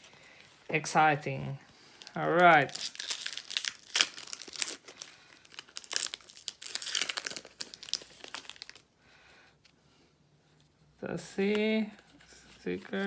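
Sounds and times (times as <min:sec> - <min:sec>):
plastic wrapper crinkling and tearing: 0:01.9 - 0:08.9.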